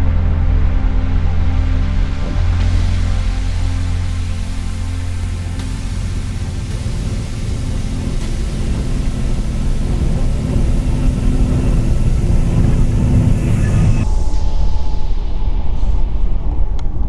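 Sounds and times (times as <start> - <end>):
train wheels rumbling on track: 4.5 - 14.0.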